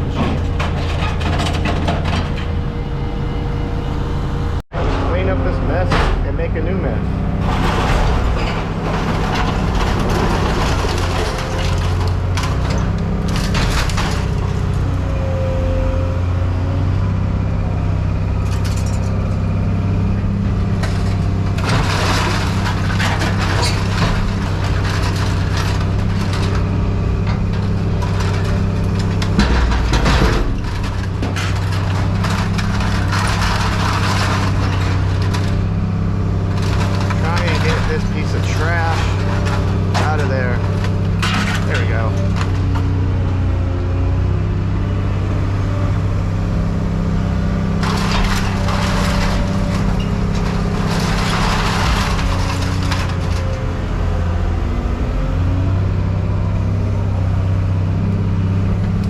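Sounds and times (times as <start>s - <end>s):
scrap metal clattering: 0.0s - 2.6s, 7.3s - 15.4s, 20.1s - 43.1s, 47.2s - 54.4s
heavy machine engine running: 0.0s - 59.0s.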